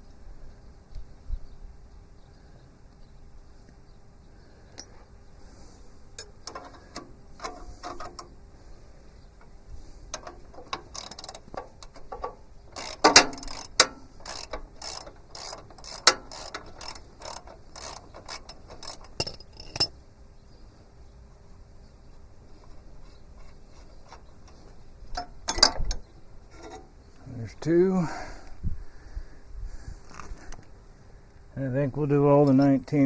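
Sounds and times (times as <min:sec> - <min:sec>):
sharp metallic clicks: 0:06.2 - 0:08.5, 0:09.4 - 0:20.0, 0:22.6 - 0:27.6
socket ratchet clicking: 0:09.4 - 0:19.9.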